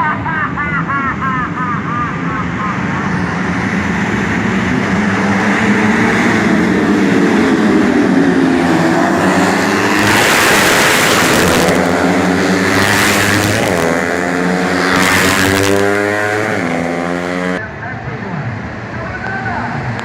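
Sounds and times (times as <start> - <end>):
motorcycles revving at high revs: 2.5 - 17.6.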